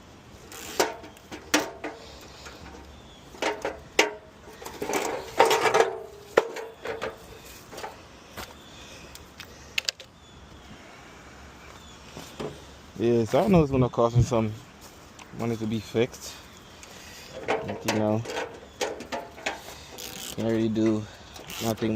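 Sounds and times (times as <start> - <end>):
metallic knocks and rattles: 0.7 - 8.0, 17.3 - 21.1.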